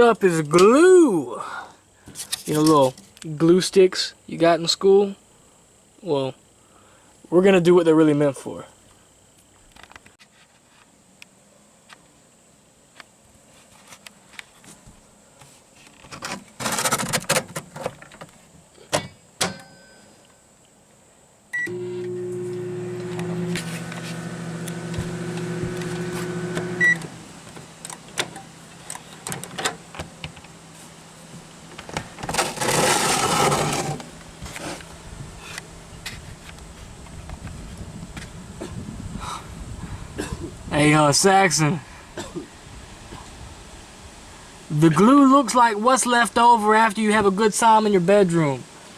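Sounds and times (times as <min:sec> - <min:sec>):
microwave oven beeps: 0:19.5 - 0:20.2, 0:21.5 - 0:27.1
microwave humming drone: 0:21.5 - 0:32.6.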